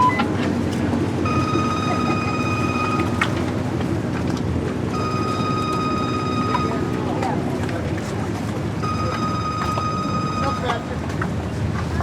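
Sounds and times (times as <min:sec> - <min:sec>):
boat engine low rumble: 0:00.0 - 0:12.0
high steady tone: 0:04.9 - 0:07.2.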